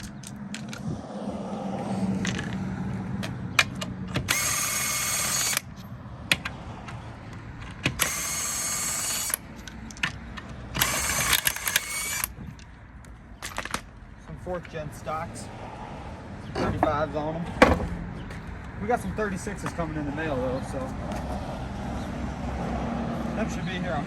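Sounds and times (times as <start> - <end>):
metal clicks of socket and nuts: 9.3 - 13.9.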